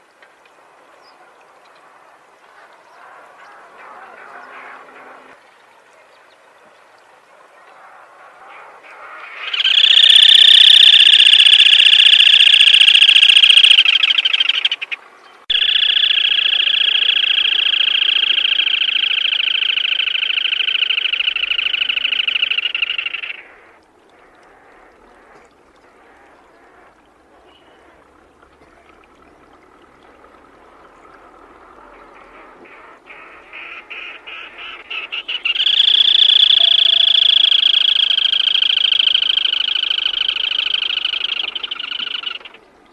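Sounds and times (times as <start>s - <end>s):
bird giving rapid trills: 9.4s - 14.9s, 15.5s - 23.4s, 35.0s - 42.6s.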